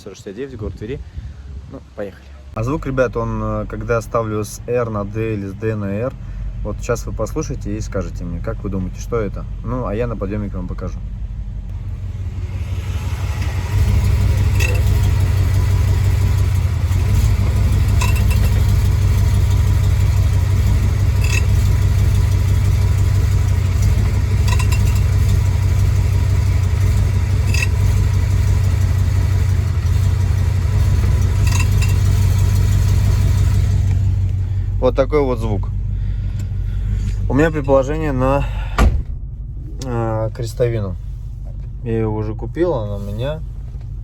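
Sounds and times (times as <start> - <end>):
engine idling: 2.7 - 44.0
metallic clunk of gear shifts: 13.4 - 28.7, 30.8 - 34.4.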